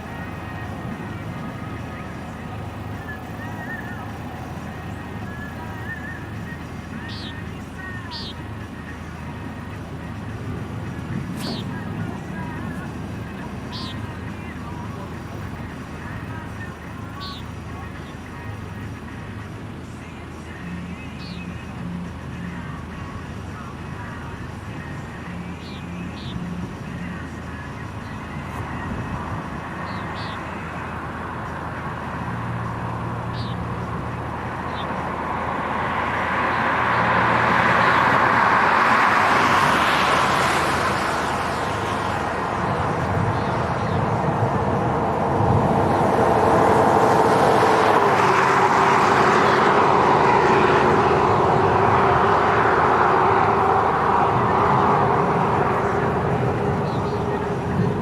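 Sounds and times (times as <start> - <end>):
road noise: 0.0 - 58.0
rushing vehicle noise: 0.0 - 58.0
low hum: 31.2 - 58.0.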